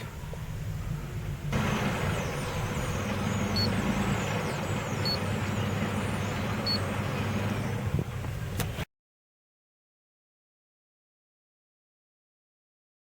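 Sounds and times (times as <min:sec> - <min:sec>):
car engine idling rough: 0:00.8 - 0:08.8
short high beeps: 0:06.6 - 0:06.9.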